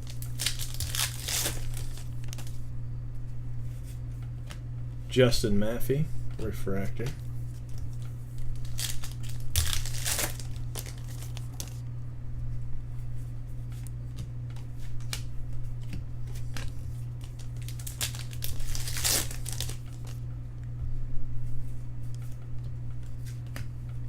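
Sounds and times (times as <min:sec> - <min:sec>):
card pack wrappers crinkling: 0:00.0 - 0:02.6, 0:07.5 - 0:11.8, 0:16.2 - 0:20.2
steady low hum: 0:00.0 - 0:24.0.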